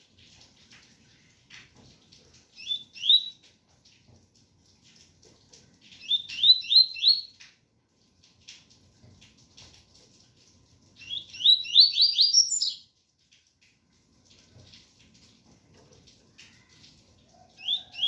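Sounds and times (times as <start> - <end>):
bird chirping song: 2.5 - 3.4, 6.0 - 7.4, 11.0 - 12.9, 17.5 - 18.0.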